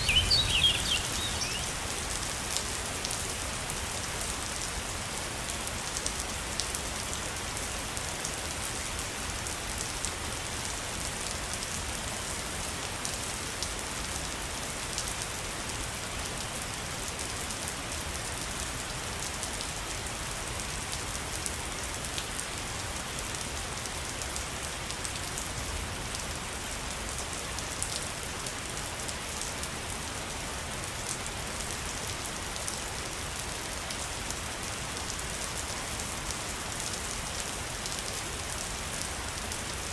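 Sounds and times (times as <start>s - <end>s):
waterfall rushing: 0.0s - 1.9s.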